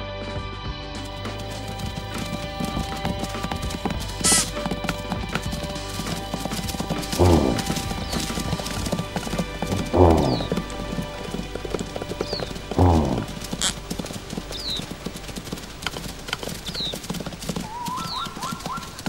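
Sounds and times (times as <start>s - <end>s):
music with clopping rhythm: 0.1s - 19.0s
animal calls falling in pitch: 7.2s - 7.8s, 12.8s - 13.3s
sharp burst of noise: 10.0s - 10.6s, 12.8s - 13.7s.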